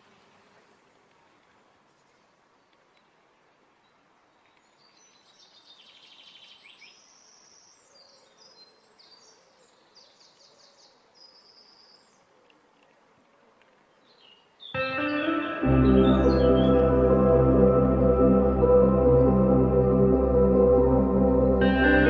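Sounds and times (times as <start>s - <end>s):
faint background hiss: 0.0s - 22.0s
songbird trills: 3.8s - 12.4s, 13.8s - 18.1s.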